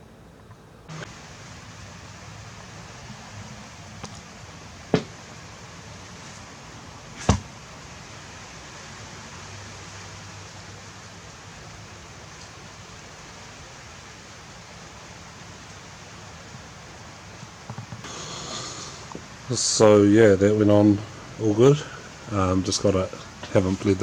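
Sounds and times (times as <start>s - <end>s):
steady hiss: 0.0s - 24.0s
sharp knock: 4.9s - 5.2s.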